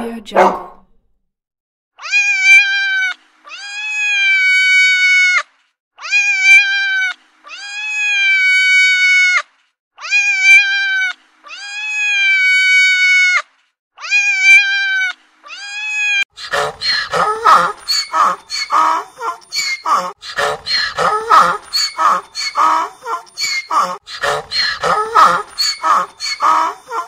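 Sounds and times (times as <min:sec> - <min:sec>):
cat meowing: 0:02.0 - 0:05.4, 0:06.0 - 0:09.4, 0:10.0 - 0:13.4, 0:14.0 - 0:16.2, 0:17.1 - 0:27.0.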